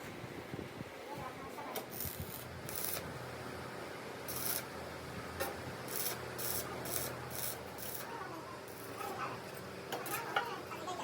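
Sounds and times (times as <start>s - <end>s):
metal rasping strokes: 4.3s - 4.7s, 5.8s - 9.2s.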